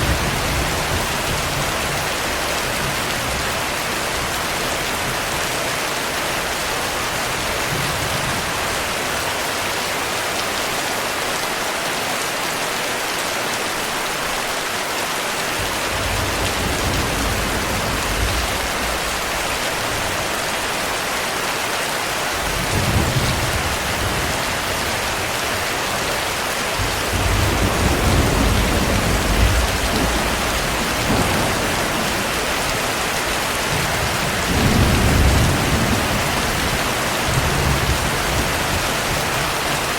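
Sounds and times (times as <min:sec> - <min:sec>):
heavy rain hissing: 0:13.8 - 0:39.9
low rolling thunder: 0:15.6 - 0:20.2, 0:22.4 - 0:25.3, 0:26.8 - 0:39.7.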